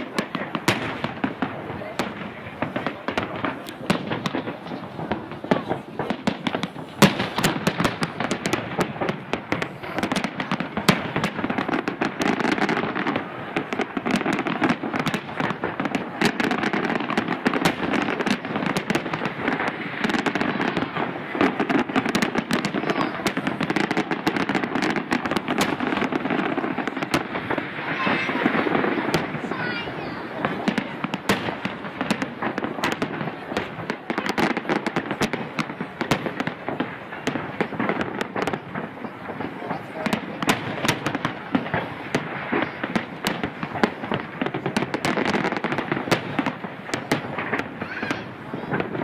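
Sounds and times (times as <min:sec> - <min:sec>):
fireworks bangs and cracks: 0:00.0 - 0:49.0
fireworks crackle: 0:00.0 - 0:49.0.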